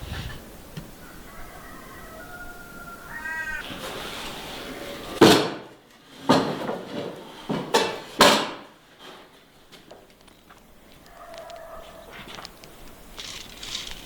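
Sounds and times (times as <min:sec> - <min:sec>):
cat meowing: 0:01.8 - 0:03.6.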